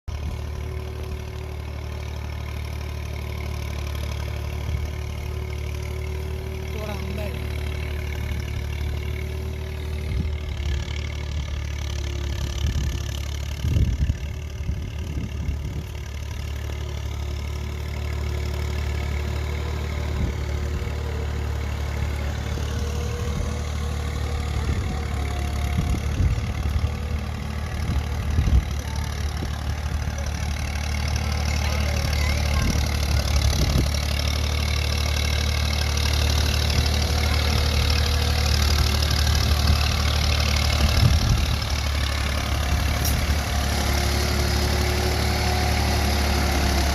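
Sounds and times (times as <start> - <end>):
diesel tractor engine droning: 0.1 - 46.9
engine knocks: 17.4 - 46.9.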